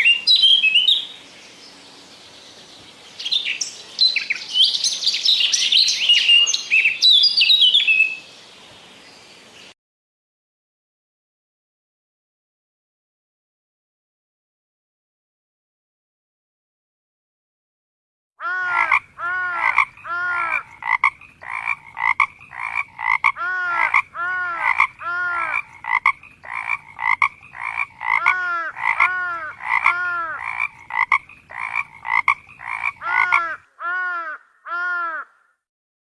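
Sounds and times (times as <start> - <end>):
frogs calling: 18.4 - 35.5.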